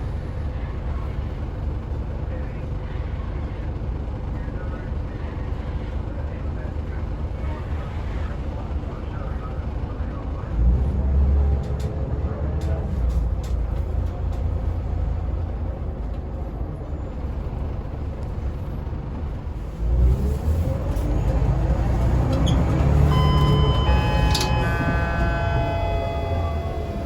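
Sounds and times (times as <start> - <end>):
bus diesel engine accelerating: 0.0 - 27.0
high-pitched tones: 22.4 - 27.0.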